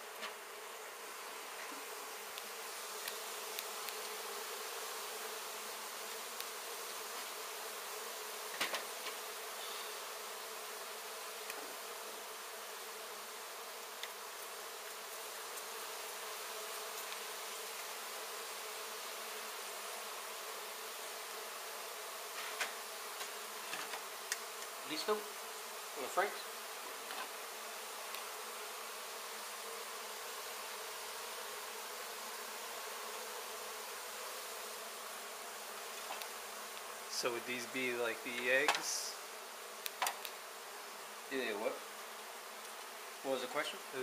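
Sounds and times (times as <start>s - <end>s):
bee colony buzzing: 0.0s - 44.0s.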